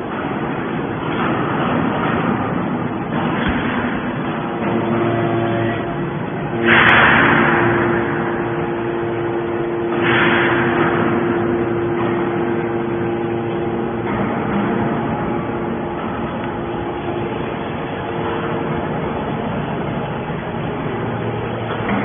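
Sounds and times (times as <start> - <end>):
hydraulic pump hum: 0.0 - 22.0
loud rushing surges: 6.2 - 22.0.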